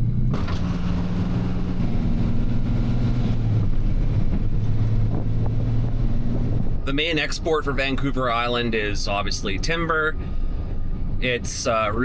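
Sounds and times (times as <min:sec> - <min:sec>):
road noise: 0:00.0 - 0:12.0
truck engine droning: 0:00.0 - 0:12.0.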